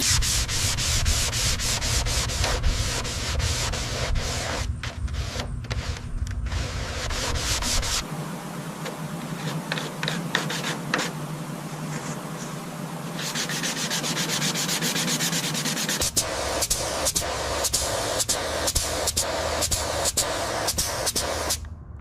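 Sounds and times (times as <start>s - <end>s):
sanding strokes on a surface: 0.0s - 5.4s, 6.5s - 8.0s, 9.4s - 11.2s, 11.8s - 21.5s
low rumble: 21.6s - 22.0s.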